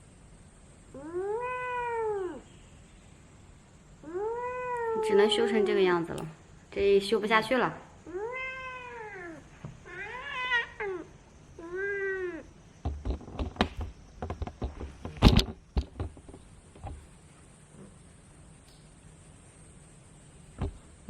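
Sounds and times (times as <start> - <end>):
cat meowing: 1.0 - 2.5, 4.0 - 5.8, 8.0 - 12.5
sharp clicks and knocks: 12.8 - 17.0, 20.6 - 20.8.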